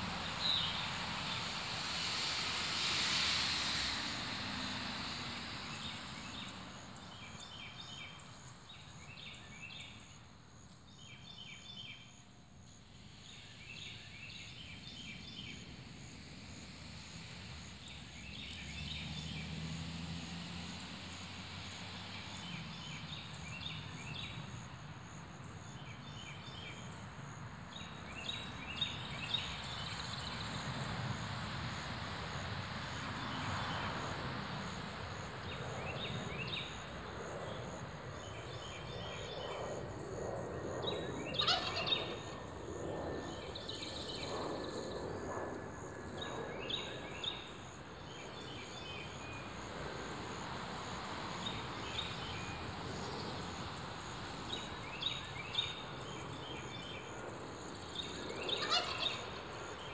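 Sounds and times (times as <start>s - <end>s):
rolling lower bird calls: 40.9s - 42.4s, 58.0s - 59.9s.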